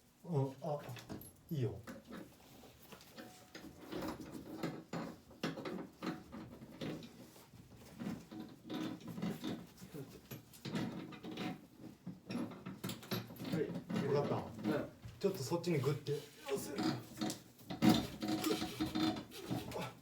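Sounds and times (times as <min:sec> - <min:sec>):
knocks scrapes and rattles: 0:00.9 - 0:20.0.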